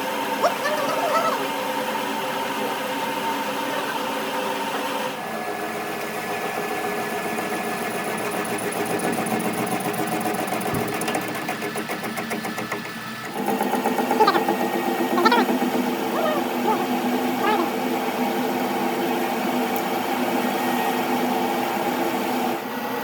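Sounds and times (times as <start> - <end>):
workshop machine motor running: 0.0 - 23.0.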